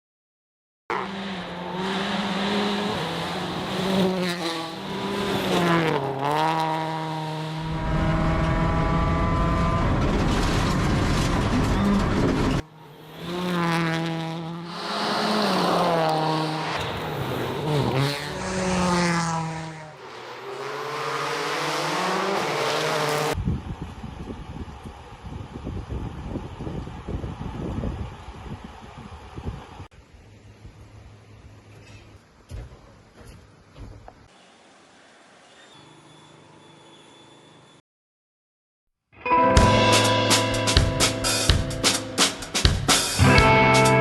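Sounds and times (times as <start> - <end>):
rally car engine revving: 0.9 - 23.9
tyres on gravel: 9.6 - 23.4.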